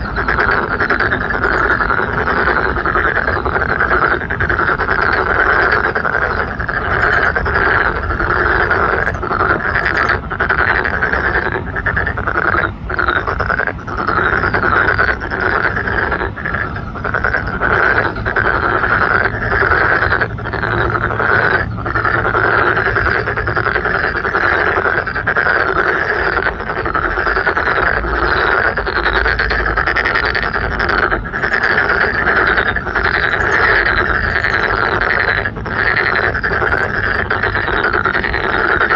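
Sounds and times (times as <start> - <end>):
frogs croaking chorus: 0.0 - 38.9.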